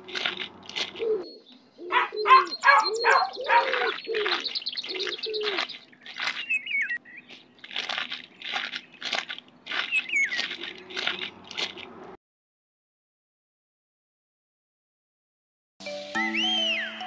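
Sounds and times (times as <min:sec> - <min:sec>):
bird wings flapping: 0:03.6 - 0:06.6
quick high bird chirps: 0:09.8 - 0:10.6.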